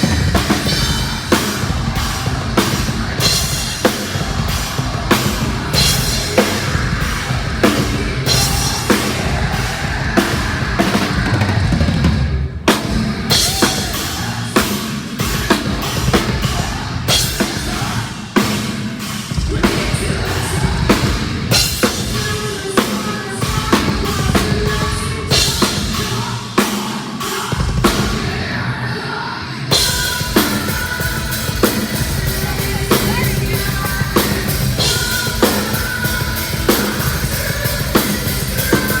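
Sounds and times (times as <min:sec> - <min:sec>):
bass drum and cymbal strikes: 0:00.0 - 0:11.3, 0:29.7 - 0:39.0
heavy metal band playing live: 0:00.0 - 0:39.0.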